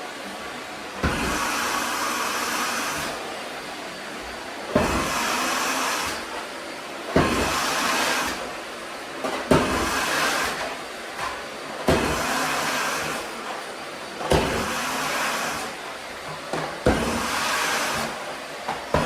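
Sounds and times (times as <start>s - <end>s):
vacuum cleaner running: 0.0s - 19.0s
vacuum cleaner knock: 1.0s - 3.2s, 4.2s - 6.3s, 7.2s - 8.6s, 9.2s - 13.2s, 14.2s - 19.0s.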